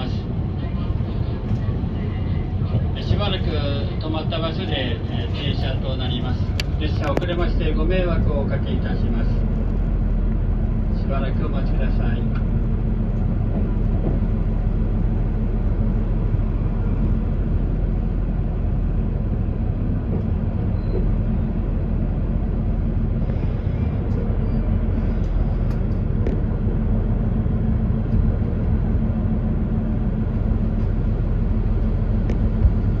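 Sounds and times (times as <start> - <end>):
railcar engine idling: 0.0 - 33.0.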